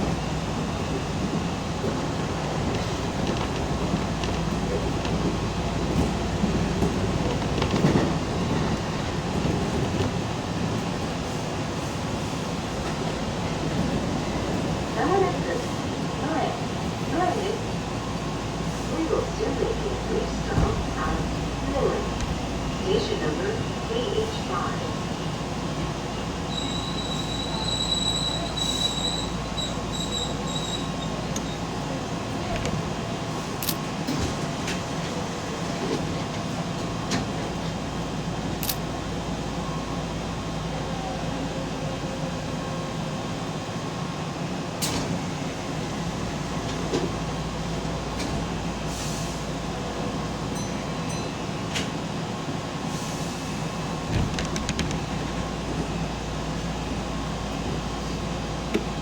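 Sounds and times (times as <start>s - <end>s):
train rumbling: 0.0s - 59.0s
train wheels squealing: 26.5s - 31.7s.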